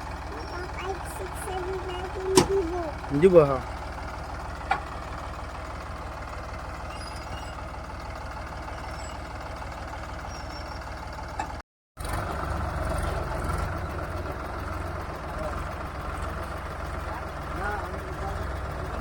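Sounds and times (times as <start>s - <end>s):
tractor engine idling: 0.0s - 19.0s.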